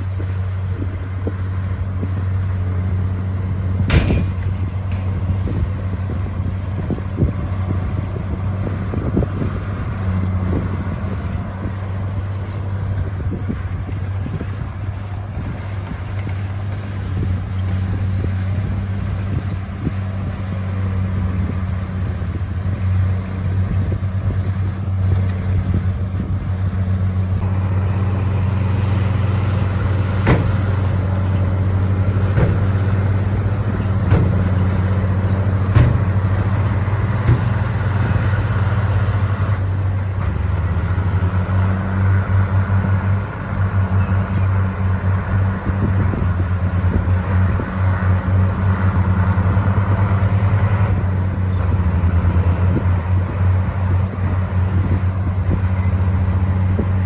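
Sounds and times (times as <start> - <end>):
bulldozer diesel engine drone: 0.0 - 57.0
short knocks: 3.8 - 7.3, 27.4 - 39.6.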